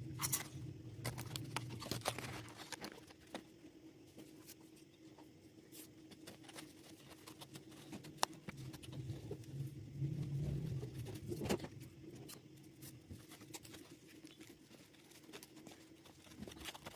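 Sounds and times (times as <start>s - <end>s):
low rumble: 9.0s - 12.0s.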